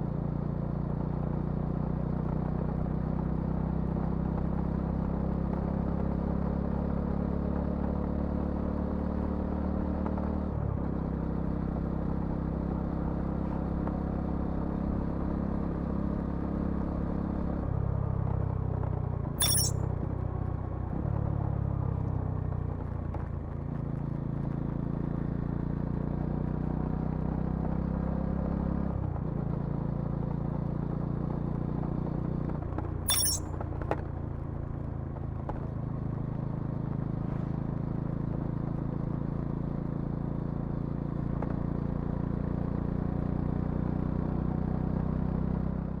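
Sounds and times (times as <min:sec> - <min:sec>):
sharp clicks: 0:19.4 - 0:19.7, 0:33.1 - 0:33.4.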